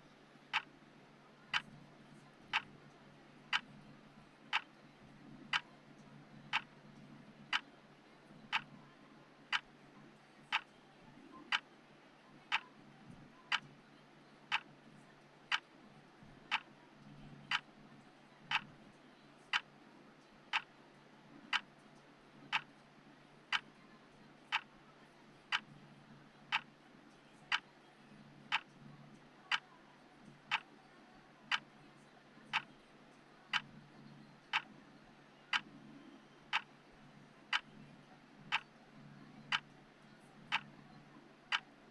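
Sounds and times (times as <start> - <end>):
faint low hum: 0.0 - 41.9
clock ticking: 2.5 - 2.7, 3.5 - 3.7, 5.5 - 5.7, 6.5 - 6.7, 8.5 - 8.7, 11.5 - 11.7, 13.5 - 13.7, 14.5 - 14.7, 15.5 - 15.7, 16.5 - 16.7, 17.5 - 17.7, 18.5 - 18.7, 19.5 - 19.7, 20.5 - 20.8, 21.5 - 21.7, 22.5 - 22.8, 23.5 - 23.7, 24.5 - 24.7, 25.5 - 25.7, 26.5 - 26.7, 28.5 - 28.8, 30.4 - 30.7, 31.5 - 31.7, 33.5 - 33.8, 34.5 - 34.7, 36.5 - 36.7, 37.5 - 37.7, 38.5 - 38.7, 39.5 - 39.8, 40.5 - 40.7, 41.5 - 41.7.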